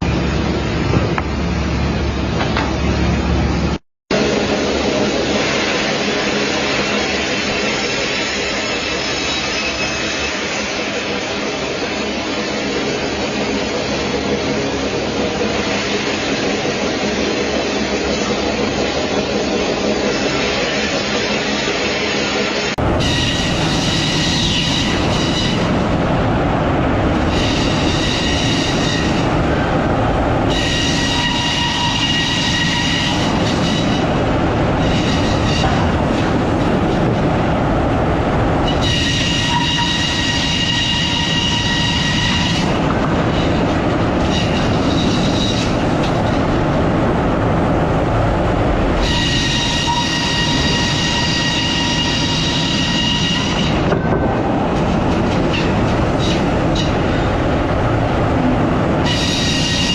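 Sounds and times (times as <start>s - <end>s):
sawmill machinery running: 0.0s - 59.9s
saw blade squealing whine: 23.0s - 25.8s, 27.3s - 29.3s, 30.5s - 34.2s, 34.8s - 36.0s, 38.6s - 43.6s, 49.0s - 54.0s, 59.0s - 59.9s.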